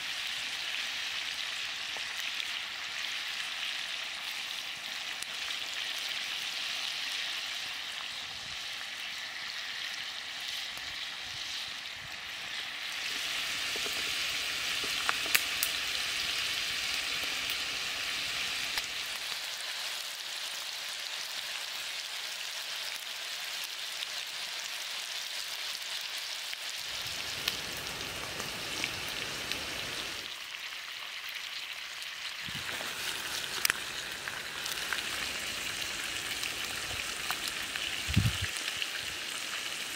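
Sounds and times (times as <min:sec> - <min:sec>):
food sizzling in hot oil: 0:00.0 - 0:39.9
oil popping: 0:32.4 - 0:38.5.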